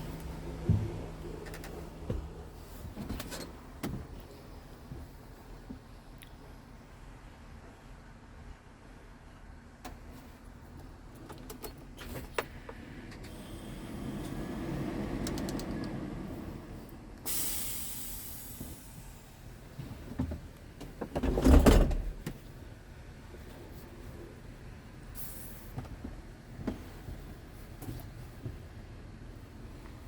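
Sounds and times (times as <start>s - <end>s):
heavy thump: 0.6s - 1.2s
compressed air hiss: 13.3s - 14.9s, 17.3s - 19.4s, 25.2s - 25.8s.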